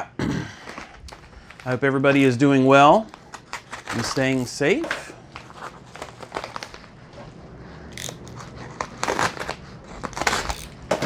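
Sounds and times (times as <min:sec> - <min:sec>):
packaging crinkling and rustling: 0:00.6 - 0:07.4, 0:08.0 - 0:11.0
packaging tearing: 0:03.0 - 0:07.0, 0:08.0 - 0:10.9.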